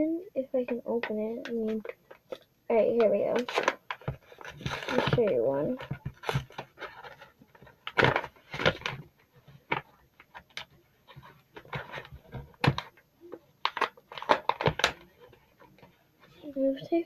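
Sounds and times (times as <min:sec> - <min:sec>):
plastic packaging clicking and crinkling: 0:01.0 - 0:16.0
plastic snapping: 0:13.6 - 0:15.1.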